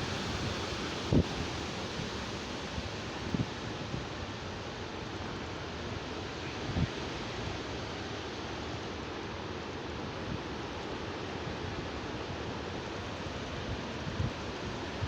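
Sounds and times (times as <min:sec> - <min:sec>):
rain hissing: 0:00.0 - 0:04.6.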